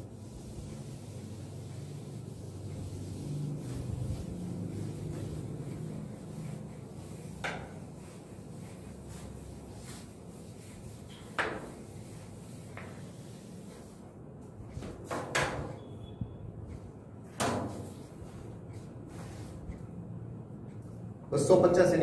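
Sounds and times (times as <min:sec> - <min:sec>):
duster rubbing blackboard: 0:00.0 - 0:14.0.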